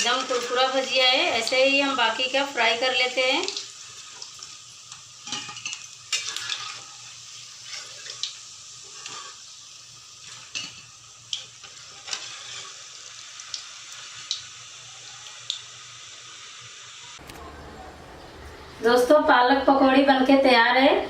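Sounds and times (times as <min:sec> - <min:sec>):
deep-frying sizzle: 0:00.0 - 0:17.5
oil crackles and pops: 0:03.2 - 0:09.6, 0:10.2 - 0:15.9.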